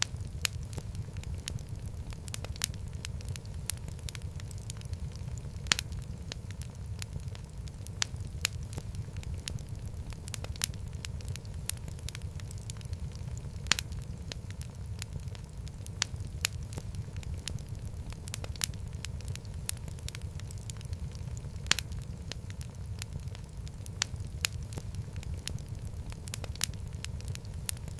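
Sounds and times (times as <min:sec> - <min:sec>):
fire crackling and popping: 0:00.0 - 0:27.9
fire flames rumbling: 0:00.0 - 0:27.9.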